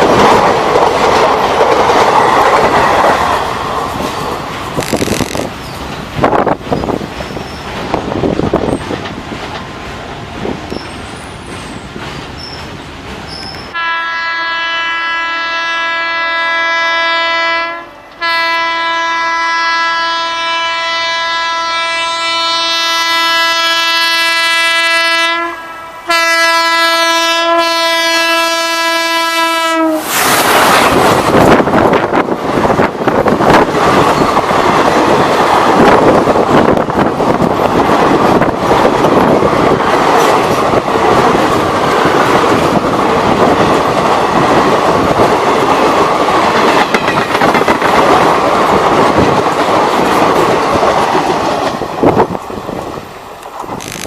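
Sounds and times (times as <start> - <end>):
train rushing past: 0.0 - 15.6, 25.2 - 54.0
train rumble and clickety-clack: 0.0 - 54.0
train horn blasts: 13.7 - 30.2.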